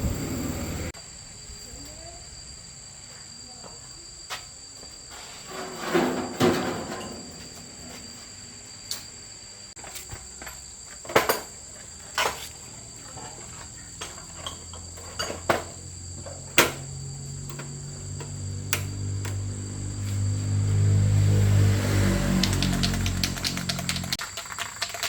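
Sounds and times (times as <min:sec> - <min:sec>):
low hum: 0:00.0 - 0:01.0
cricket trill: 0:00.0 - 0:25.0.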